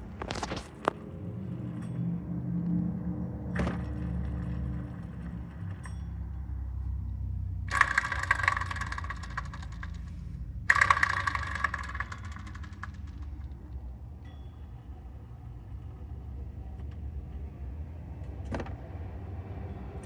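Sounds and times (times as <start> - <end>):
gritty whine and rattle: 0.0 - 16.6
car engine idling: 3.6 - 14.1.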